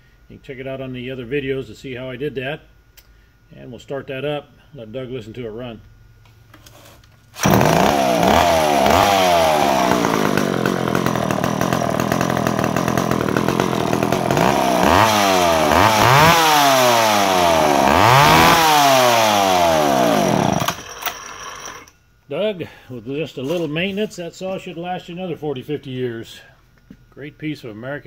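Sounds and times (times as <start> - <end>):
chainsaw revving: 7.4 - 21.9.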